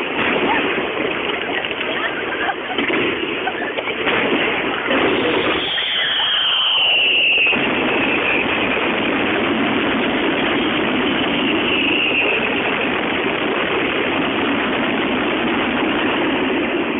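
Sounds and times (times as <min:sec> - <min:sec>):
fireworks exploding: 0:00.0 - 0:16.9
high whistle gliding down: 0:05.4 - 0:08.5, 0:11.3 - 0:12.5.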